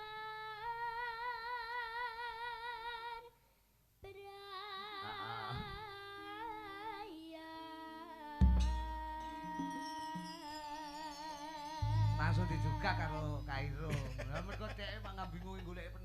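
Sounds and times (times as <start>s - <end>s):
high singing voice with waver: 0.0s - 3.4s, 4.0s - 15.6s
deep instrument strike: 8.4s - 9.8s, 11.8s - 16.0s
accompanying instrument notes: 8.4s - 16.0s.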